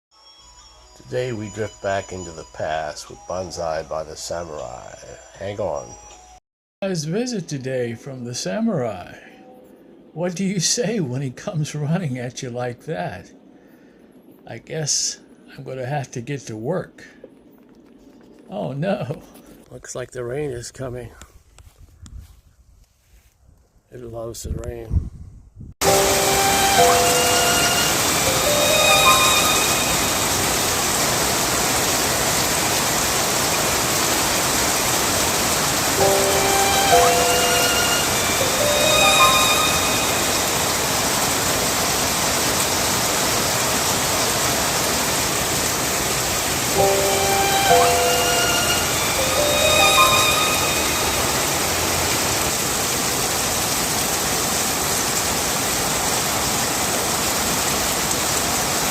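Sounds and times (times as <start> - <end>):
steady rain falling: 1.0 - 5.9, 25.8 - 58.9
held ringing tones: 25.8 - 30.7, 36.0 - 40.8, 46.8 - 51.6
music notes: 25.8 - 30.9, 35.8 - 41.2, 46.7 - 52.2.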